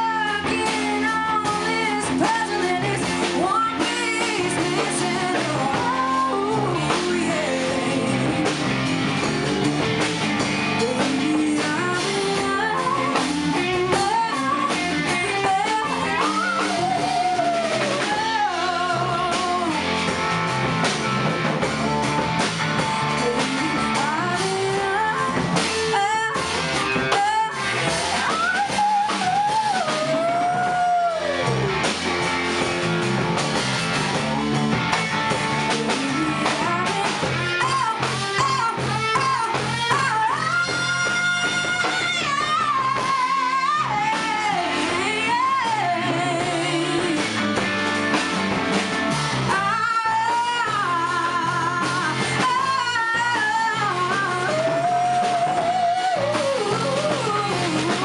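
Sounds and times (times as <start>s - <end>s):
person singing: 0.0s - 8.9s, 10.7s - 20.5s, 22.8s - 31.8s, 35.6s - 47.8s, 49.4s - 58.0s
rock band playing: 0.0s - 58.0s.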